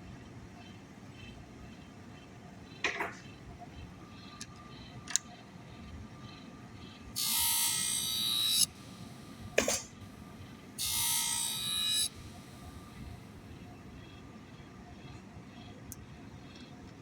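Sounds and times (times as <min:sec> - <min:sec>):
scissor sharpener grinding blade: 0:07.2 - 0:08.8, 0:10.8 - 0:12.3.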